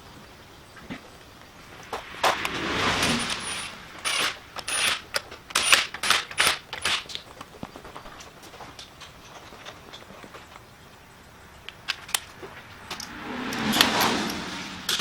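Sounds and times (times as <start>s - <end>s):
metal tools clinking and rattling: 3.0s - 7.3s.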